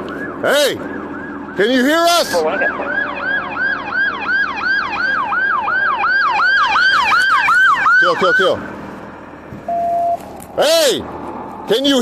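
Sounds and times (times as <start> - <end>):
police siren yelping: 0.0 - 8.8.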